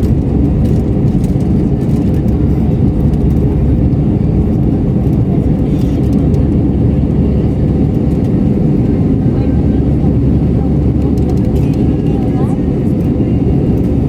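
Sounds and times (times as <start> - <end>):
jet engines roaring in cabin: 0.0 - 14.0.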